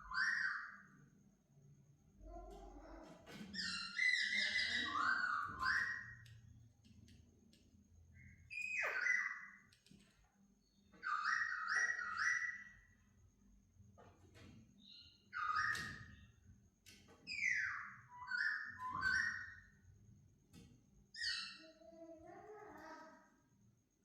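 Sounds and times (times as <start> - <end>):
bird whistling song: 0.0 - 0.9, 3.6 - 6.3, 8.2 - 9.7, 10.9 - 12.9, 14.8 - 16.3, 17.3 - 19.7.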